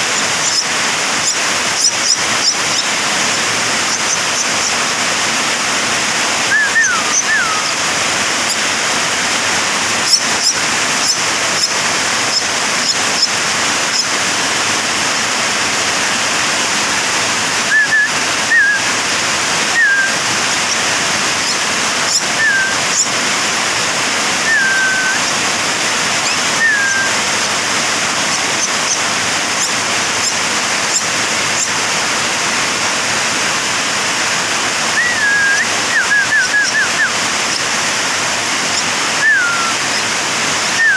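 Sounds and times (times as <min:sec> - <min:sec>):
bird chick whistled calls: 0:00.0 - 0:05.0, 0:06.4 - 0:08.6, 0:10.0 - 0:14.1, 0:17.6 - 0:19.0, 0:19.7 - 0:23.1, 0:24.4 - 0:25.4, 0:26.2 - 0:27.5, 0:29.6 - 0:31.7, 0:34.9 - 0:37.7, 0:38.7 - 0:40.1, 0:40.7 - 0:40.9
steady rushing hiss: 0:00.0 - 0:40.9
faint high chirps: 0:24.4 - 0:25.3, 0:26.2 - 0:27.2, 0:39.2 - 0:40.0.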